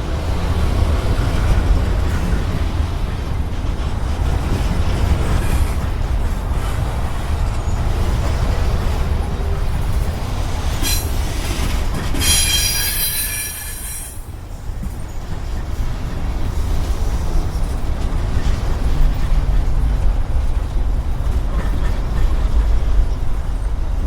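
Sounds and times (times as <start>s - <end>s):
freight train rumbling past: 0.0s - 24.0s
train wheels squealing: 10.6s - 15.7s.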